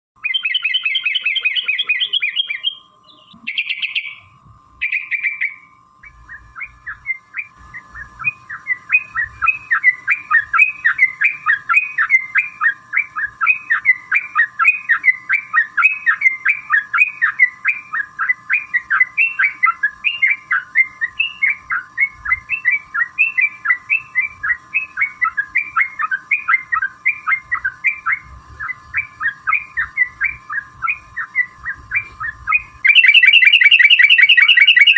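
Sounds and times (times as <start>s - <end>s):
bulbul singing: 0.2s - 34.9s
faint high whine: 0.2s - 34.9s
steady tone: 32.9s - 34.9s.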